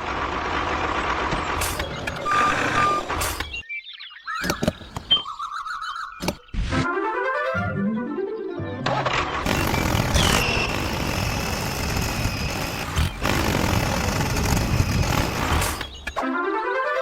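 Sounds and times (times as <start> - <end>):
heavy machinery engine whine: 0.0 - 3.5, 9.0 - 16.2.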